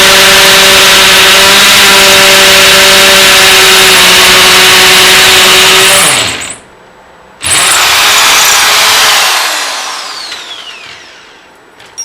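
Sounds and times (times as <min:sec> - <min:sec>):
electric drill whining: 0:00.0 - 0:06.6, 0:07.4 - 0:11.5.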